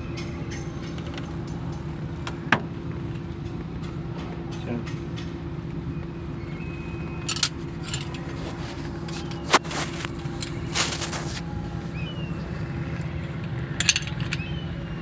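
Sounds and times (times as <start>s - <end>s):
low machine hum: 0.0s - 15.0s
hand tools clinking on metal: 7.2s - 11.3s, 13.8s - 14.6s.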